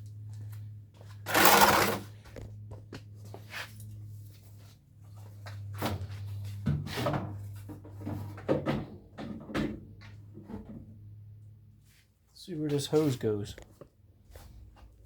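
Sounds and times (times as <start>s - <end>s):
knocks clunks and clatter: 5.6s - 11.1s.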